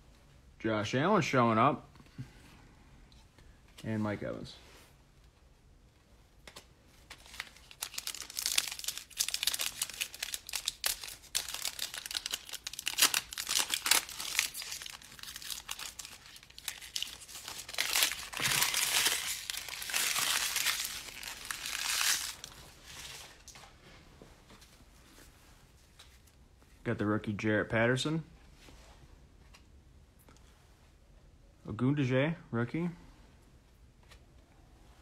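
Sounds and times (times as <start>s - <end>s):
plastic foil wrapper crinkling: 7.1s - 23.4s.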